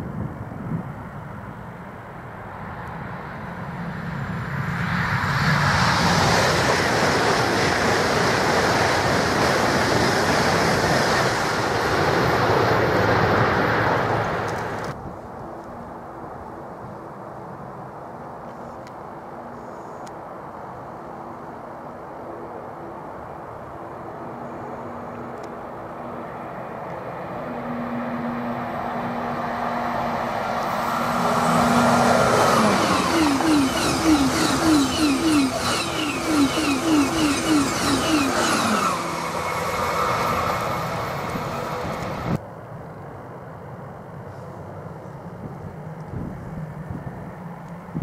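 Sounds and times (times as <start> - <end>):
high-speed train rushing past: 0.0 - 48.0
carriages rhythmic clatter: 31.0 - 39.0.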